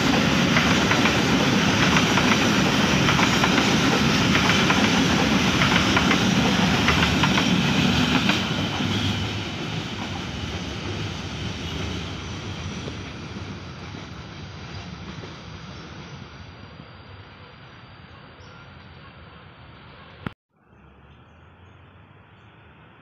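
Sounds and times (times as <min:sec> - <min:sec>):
train wheels clacking on rails: 0:00.0 - 0:16.0.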